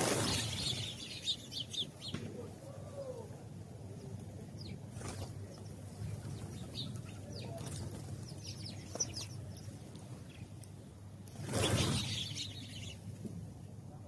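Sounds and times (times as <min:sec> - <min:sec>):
sparrows chirping: 0:00.0 - 0:02.2, 0:04.0 - 0:10.8, 0:11.4 - 0:13.2.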